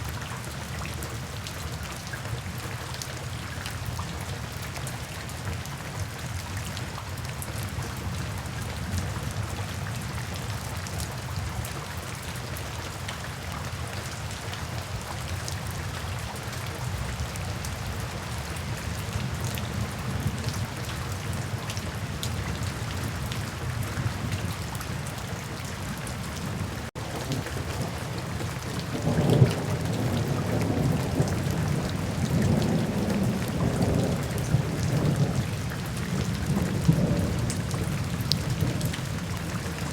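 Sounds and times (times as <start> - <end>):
steady rain falling: 0.0 - 39.9
low rumble of thunder: 25.8 - 39.9.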